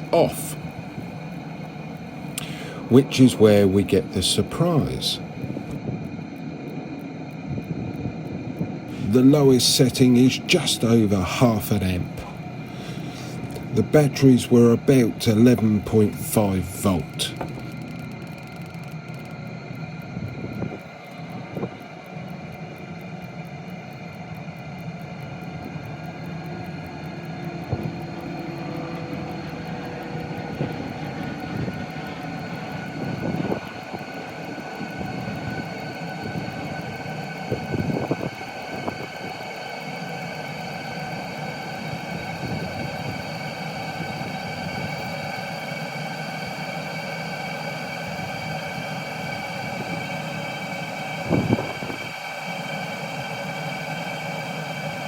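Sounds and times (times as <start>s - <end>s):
air heater fan whine: 0.0s - 55.0s.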